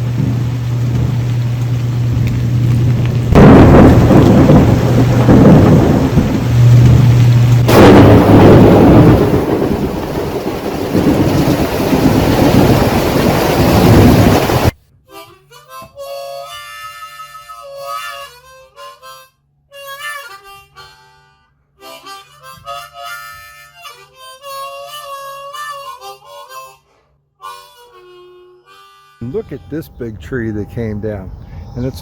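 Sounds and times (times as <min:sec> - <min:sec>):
steady rain: 0:00.0 - 0:14.8
thunder cracking and rumbling: 0:00.0 - 0:14.8
harmonica music: 0:14.9 - 0:31.3.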